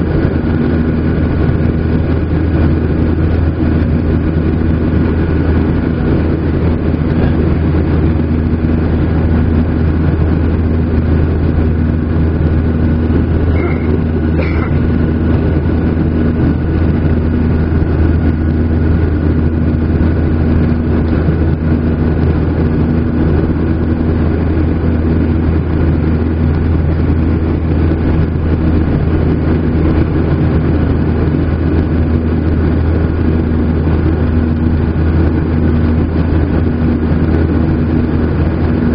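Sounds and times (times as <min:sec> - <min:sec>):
jet engine drone in cabin: 0:00.0 - 0:38.9
short high tones: 0:13.5 - 0:14.8.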